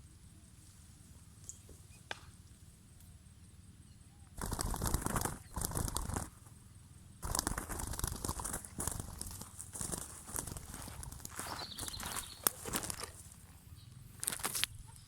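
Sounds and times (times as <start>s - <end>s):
rustling and scuffling: 7.2s - 15.0s.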